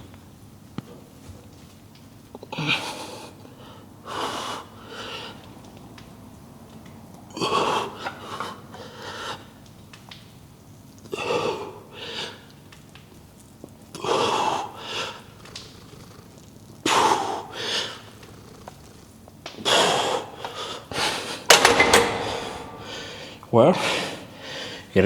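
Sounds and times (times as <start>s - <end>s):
man breathing hard: 19.6s - 25.0s.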